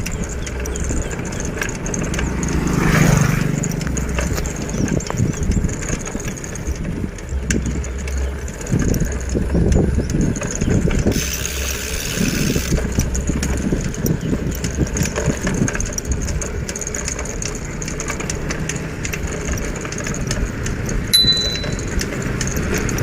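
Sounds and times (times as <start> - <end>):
wind rumble on microphone: 0.0 - 18.4
motor engine running: 0.0 - 23.0
road noise: 0.0 - 23.0
short high tone: 21.2 - 22.0.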